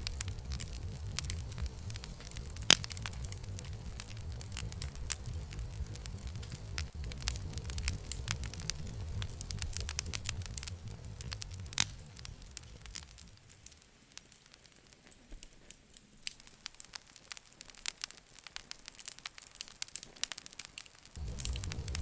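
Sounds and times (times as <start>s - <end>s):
low rumble: 0.0s - 13.7s, 21.2s - 22.0s
campfire wood crackling and popping: 0.0s - 22.0s.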